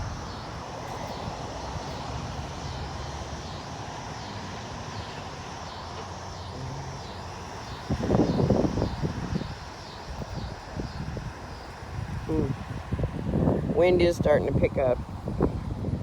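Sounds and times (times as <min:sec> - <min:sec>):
wind gust buffeting microphone: 0:00.0 - 0:03.2, 0:06.7 - 0:16.0
low rumble of wind: 0:00.0 - 0:16.0.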